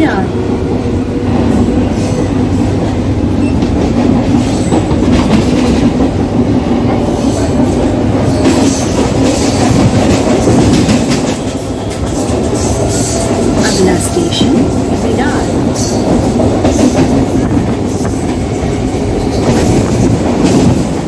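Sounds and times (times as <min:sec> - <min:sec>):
train rattling: 0:00.0 - 0:21.0
train wheels rumbling on rails: 0:00.0 - 0:21.0.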